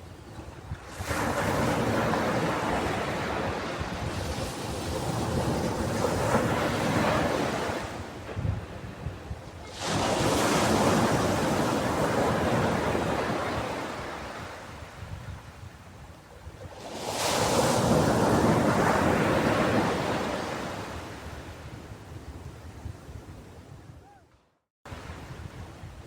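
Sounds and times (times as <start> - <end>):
ocean waves breaking: 0.8 - 14.9, 16.7 - 21.6.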